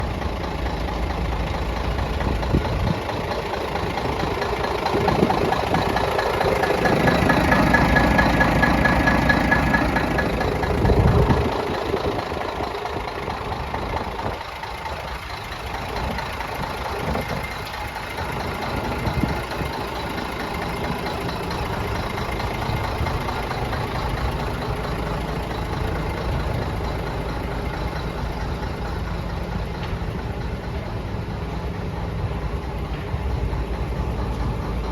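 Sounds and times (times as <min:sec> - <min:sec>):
diesel truck idling: 0:00.0 - 0:34.9.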